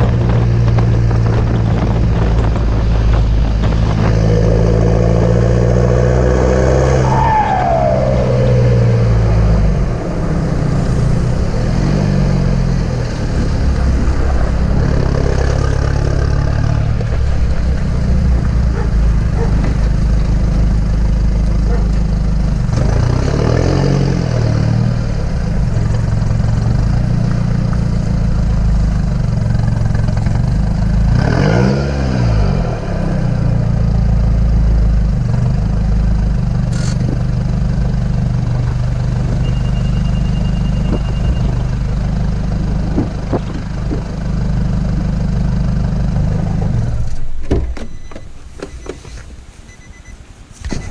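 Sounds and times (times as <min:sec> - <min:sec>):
engine revving: 0:00.0 - 0:34.0
car engine droning: 0:00.0 - 0:50.9.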